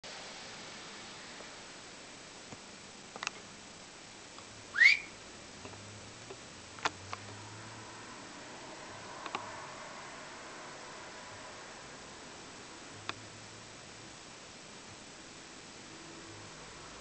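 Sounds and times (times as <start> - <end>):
canary whistled chirp: 4.7 - 5.2.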